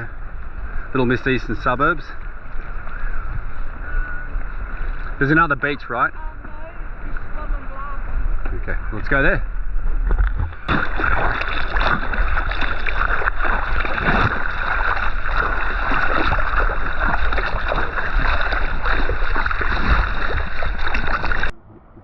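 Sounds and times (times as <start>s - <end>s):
wind buffeting microphone: 0.0s - 22.0s
water sloshing and splashing: 10.0s - 21.5s.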